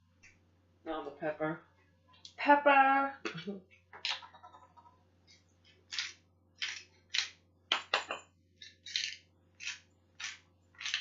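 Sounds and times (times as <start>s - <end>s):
pepper grinder crunching: 5.8s - 11.0s.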